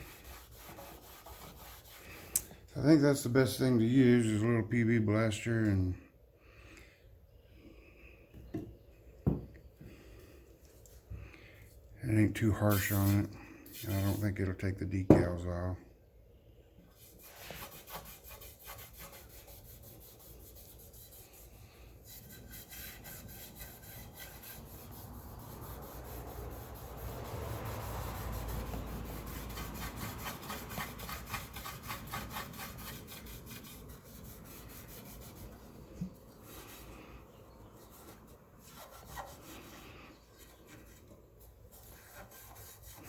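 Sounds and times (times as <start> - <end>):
hand scrubbing painted metal: 0.0 - 4.6, 12.0 - 15.6, 17.0 - 43.0.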